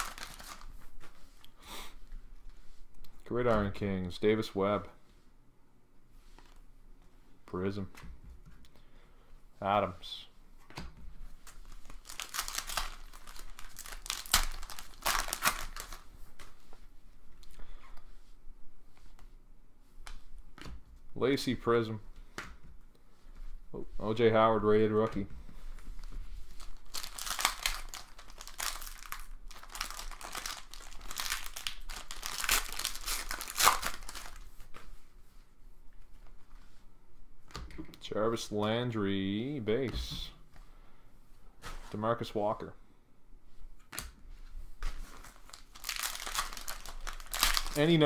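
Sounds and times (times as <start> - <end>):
foil wrapper crinkling and tearing: 0.0 - 0.8, 11.6 - 16.1, 26.5 - 34.4, 45.1 - 48.0.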